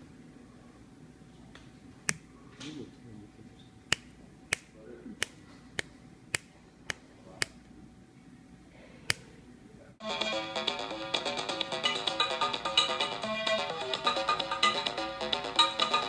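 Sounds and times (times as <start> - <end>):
finger snaps: 3.9 - 7.6.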